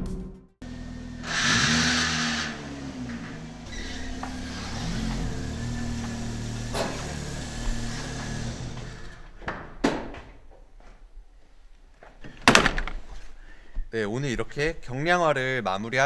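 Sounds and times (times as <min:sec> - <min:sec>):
car engine running: 0:00.6 - 0:09.4
sharp knocks: 0:05.1 - 0:10.6, 0:12.4 - 0:13.0.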